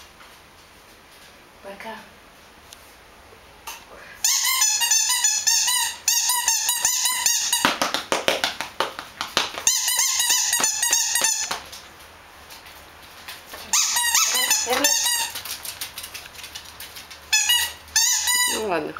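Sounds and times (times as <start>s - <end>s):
dogs yapping: 9.6s - 11.7s, 13.6s - 18.6s.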